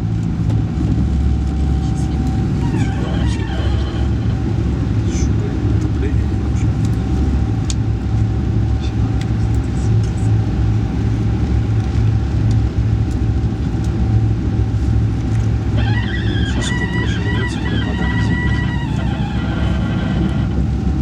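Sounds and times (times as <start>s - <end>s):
faint steady whine: 0.0s - 21.0s
train rumble: 0.0s - 21.0s
higher held pitches: 15.6s - 20.6s.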